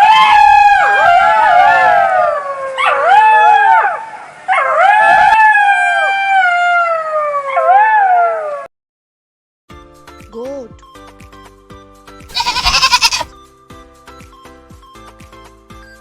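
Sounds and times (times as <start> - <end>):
short yips: 12.3 - 13.3.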